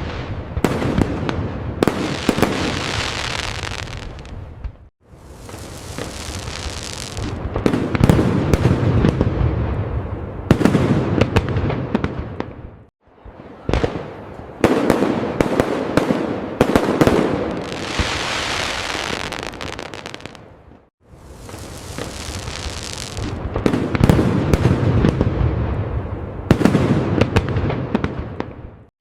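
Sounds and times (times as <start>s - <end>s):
fireworks bangs and crackling: 0.0s - 28.9s
hissing crackle: 5.1s - 7.4s, 21.1s - 23.4s.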